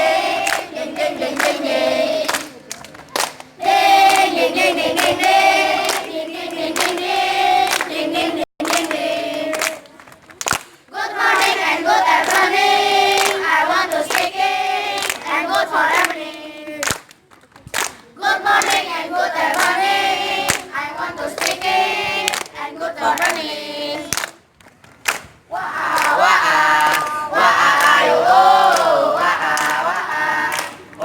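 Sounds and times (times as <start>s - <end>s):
children's choir singing: 0.0s - 2.6s, 3.6s - 9.9s, 10.9s - 16.8s, 18.2s - 24.2s, 25.5s - 31.0s
hand claps: 0.4s - 0.7s, 2.2s - 4.3s, 4.9s - 8.0s, 8.6s - 11.6s, 12.2s - 12.5s, 13.1s - 14.4s, 15.0s - 18.8s, 19.5s - 19.8s, 20.4s - 20.7s, 21.4s - 23.4s, 24.1s - 26.2s, 29.5s - 29.8s, 30.5s - 31.0s.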